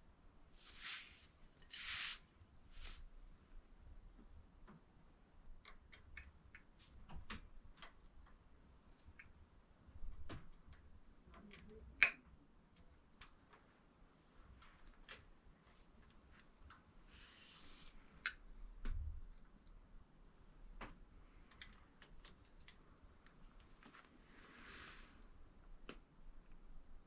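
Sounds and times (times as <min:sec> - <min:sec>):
soft hiss: 0:00.4 - 0:04.2, 0:13.2 - 0:27.0.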